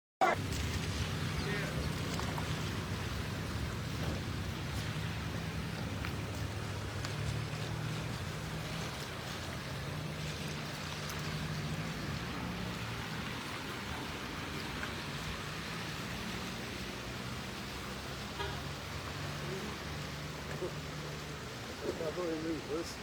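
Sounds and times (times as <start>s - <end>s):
floodwater rushing: 0.2s - 23.0s
low steady hum: 0.4s - 13.7s.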